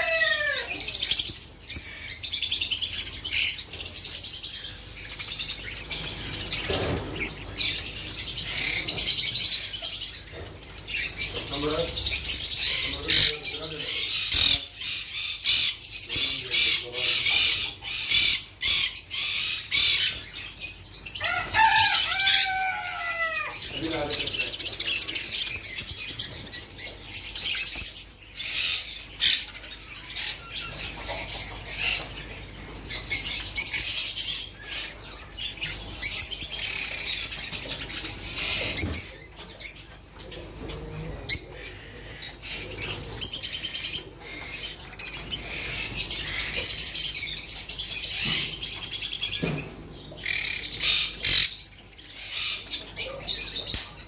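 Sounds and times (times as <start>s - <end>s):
parrots chattering: 0.0s - 54.0s.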